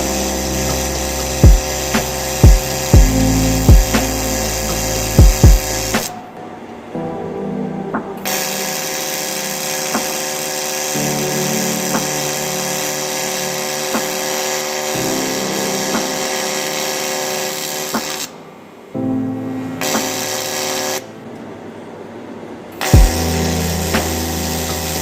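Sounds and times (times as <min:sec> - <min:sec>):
welding arc hissing buzz: 0:00.0 - 0:06.2, 0:08.2 - 0:18.4, 0:19.8 - 0:21.1, 0:22.8 - 0:25.0
background music with soft beats: 0:00.0 - 0:17.3, 0:17.9 - 0:18.3, 0:19.0 - 0:21.0, 0:22.8 - 0:25.0.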